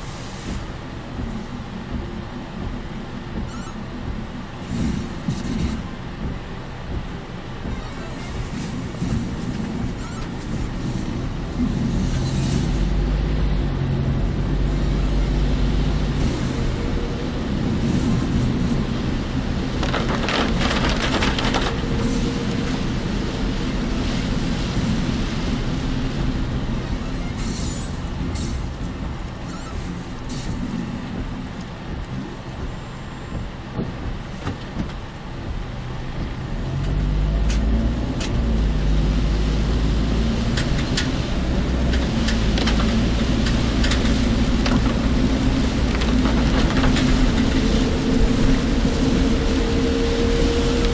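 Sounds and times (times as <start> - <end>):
car engine and road noise: 0.0 - 50.9.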